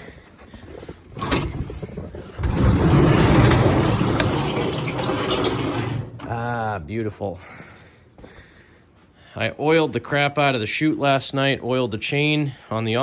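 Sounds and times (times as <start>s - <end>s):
garage door rumbling and humming: 0.7s - 6.6s
garage door click: 1.1s - 1.8s, 2.4s - 6.4s.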